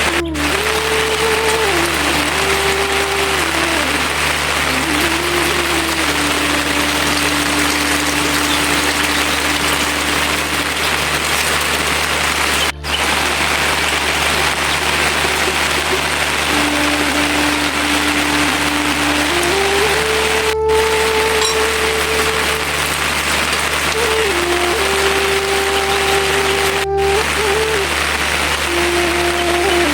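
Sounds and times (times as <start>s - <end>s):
low steady hum: 0.0s - 29.9s
steady rain hiss: 0.0s - 29.9s
faint wavering tone: 20.0s - 23.0s.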